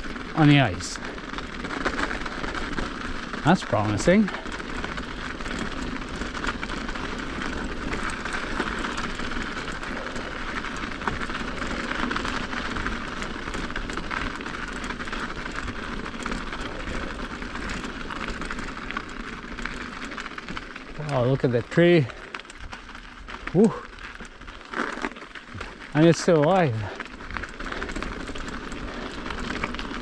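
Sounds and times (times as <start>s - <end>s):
bike clicks and rattles: 0.0s - 30.0s
bike tyres rolling: 0.0s - 30.0s.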